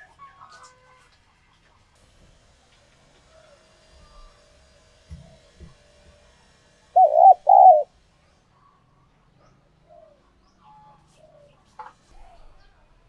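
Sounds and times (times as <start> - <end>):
dove cooing: 7.0 - 7.9.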